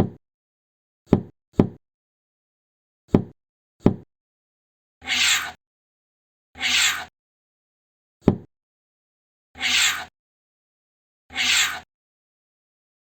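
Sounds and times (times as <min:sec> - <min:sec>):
scraping rasp: 0:05.0 - 0:05.6, 0:06.6 - 0:07.1, 0:09.6 - 0:10.1, 0:11.3 - 0:11.9.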